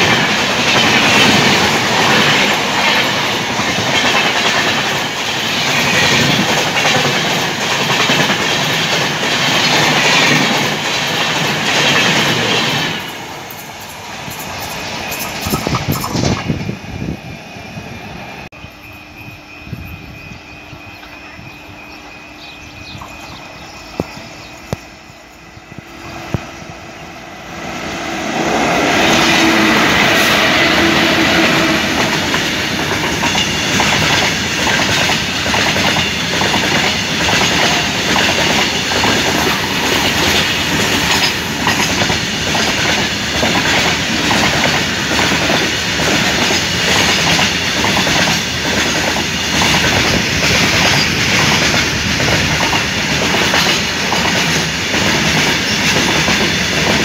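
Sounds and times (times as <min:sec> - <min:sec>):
wheels clickety-clack over rail joints: 0:00.0 - 0:16.8, 0:28.4 - 0:57.0
electric locomotives passing: 0:00.0 - 0:57.0.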